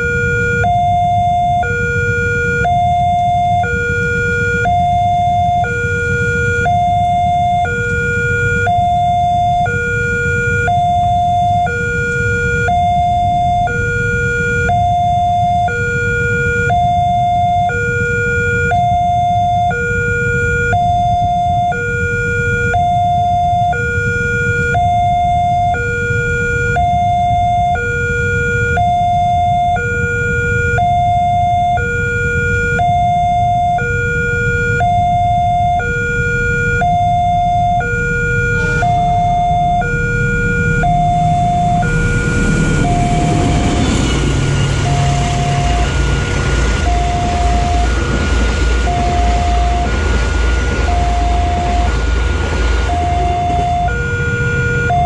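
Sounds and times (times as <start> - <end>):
two-tone crossing alarm: 0.0 - 55.0
low rumble: 33.5 - 55.0.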